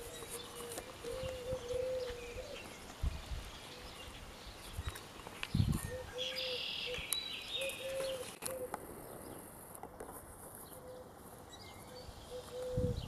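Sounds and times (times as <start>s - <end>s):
low bird calls: 0.0s - 13.0s
high bird chirps: 0.1s - 8.7s.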